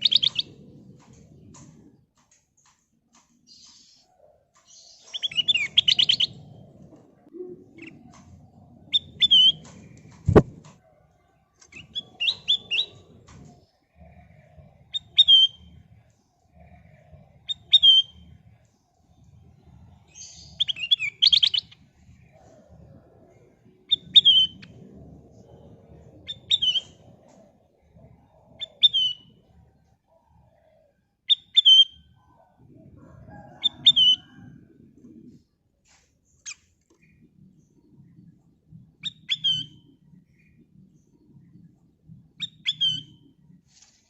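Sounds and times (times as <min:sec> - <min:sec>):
bulbul singing: 0:04.6 - 0:06.7, 0:23.6 - 0:27.2.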